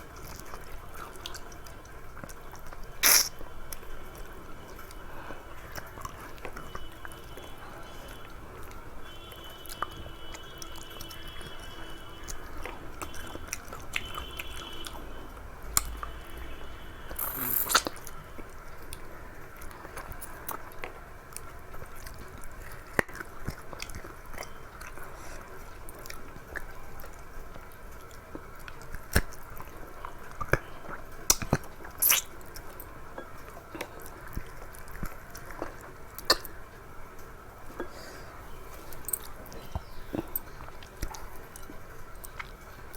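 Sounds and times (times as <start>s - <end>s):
person chewing food: 0.0s - 42.9s
wet mouth sounds: 2.2s - 3.9s, 17.1s - 18.2s, 30.4s - 32.5s, 33.8s - 36.6s.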